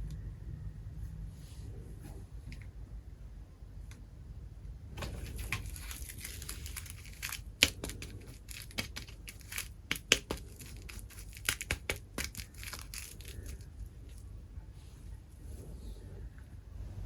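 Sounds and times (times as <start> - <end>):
packaging snapping: 5.0 - 13.7
packaging crinkling and tearing: 5.0 - 14.2.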